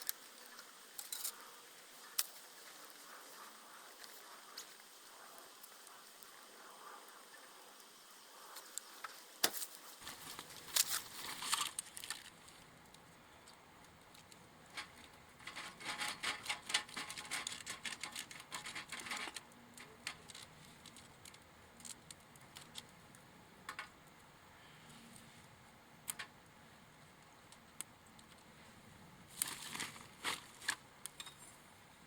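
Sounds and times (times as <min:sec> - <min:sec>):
wood fire crackling and popping: 0:00.0 - 0:06.4, 0:08.5 - 0:24.3, 0:26.0 - 0:28.6.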